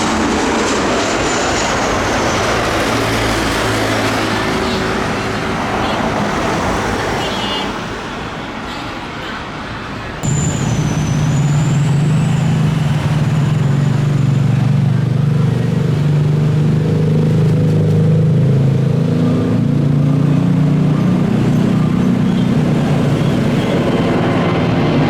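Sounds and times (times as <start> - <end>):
jet engines droning: 0.0 - 7.2, 7.8 - 25.0
thin high whine: 10.2 - 15.6.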